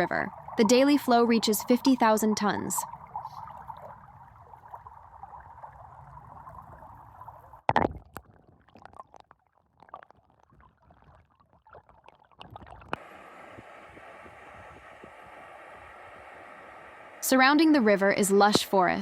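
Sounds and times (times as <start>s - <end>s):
small ticks and splashes: 2.8s - 13.0s.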